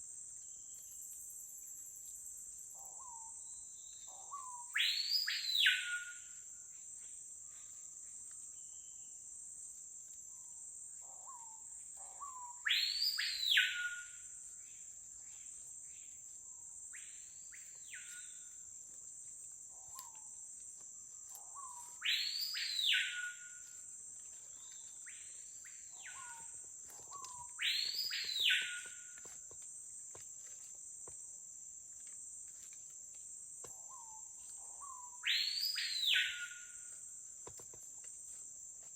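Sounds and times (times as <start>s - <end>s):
bird whistling call: 4.4s - 6.3s, 12.6s - 14.2s, 21.7s - 23.6s, 27.2s - 29.0s, 34.8s - 36.8s.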